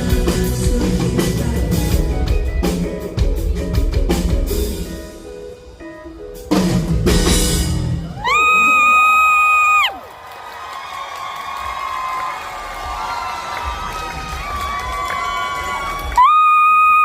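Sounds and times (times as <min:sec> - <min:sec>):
live pop-rock band playing: 0:00.0 - 0:09.0.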